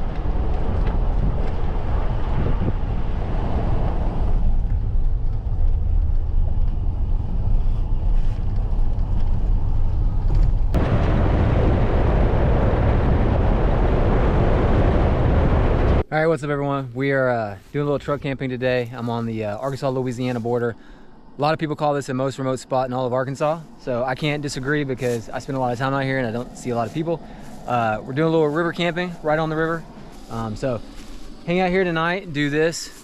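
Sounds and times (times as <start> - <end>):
steady low rumbling: 0.0 - 33.0.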